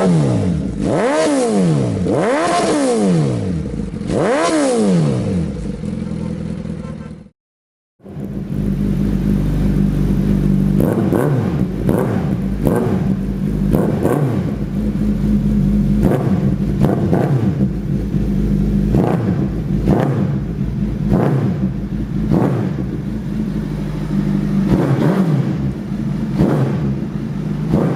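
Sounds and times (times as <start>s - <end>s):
motorcycle engine idling: 5.4s - 7.3s, 8.0s - 27.9s
engine throttle blips: 8.0s - 27.9s.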